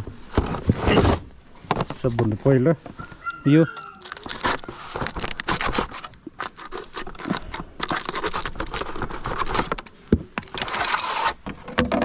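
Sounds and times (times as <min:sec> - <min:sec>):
packaging rustling and crinkling: 0:03.1 - 0:11.0.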